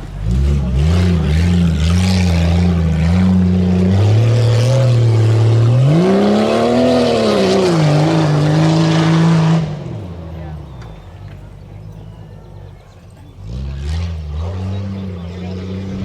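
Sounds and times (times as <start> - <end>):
truck engine running hard: 0.0 - 16.0.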